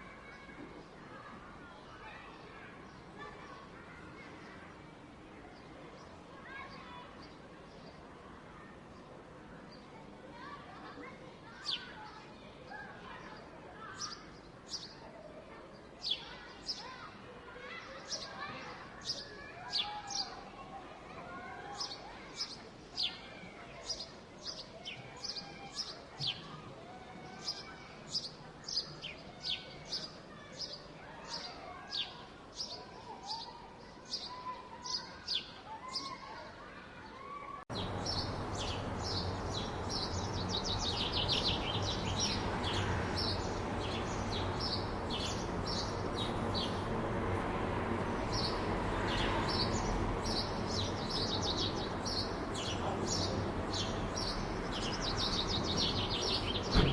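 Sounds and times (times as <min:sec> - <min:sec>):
faint distant voices: 0:00.0 - 0:56.9
low hum of city noise: 0:00.0 - 0:56.9
small birds chirping: 0:11.1 - 0:15.1, 0:15.7 - 0:20.6, 0:21.4 - 0:26.6, 0:37.7 - 0:56.9.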